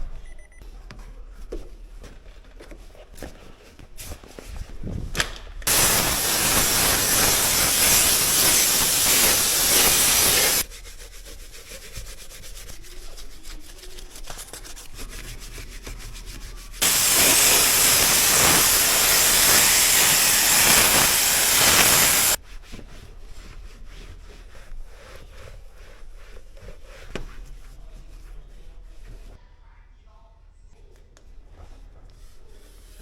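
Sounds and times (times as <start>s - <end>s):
loud steady hiss: 5.7s - 10.6s, 16.8s - 22.4s.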